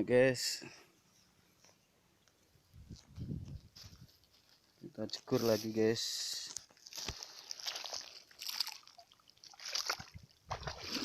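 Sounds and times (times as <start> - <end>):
footsteps splashing through water and mud: 6.5 - 11.0.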